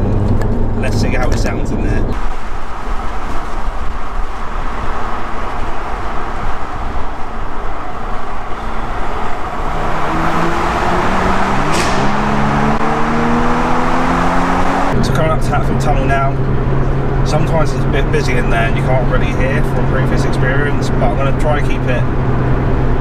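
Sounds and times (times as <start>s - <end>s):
car engine accelerating: 0.0s - 23.0s
road and tyre noise: 0.0s - 23.0s.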